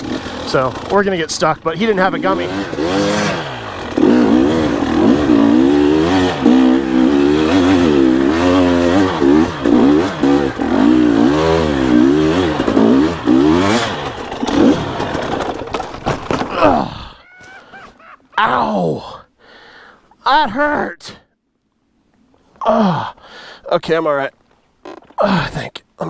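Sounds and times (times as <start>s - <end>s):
dirt bike engine revving: 0.0s - 16.8s.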